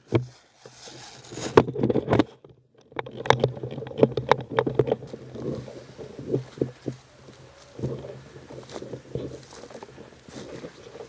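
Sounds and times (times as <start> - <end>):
sharp clicks and knocks: 1.4 - 11.0
steady low hum: 4.0 - 11.0.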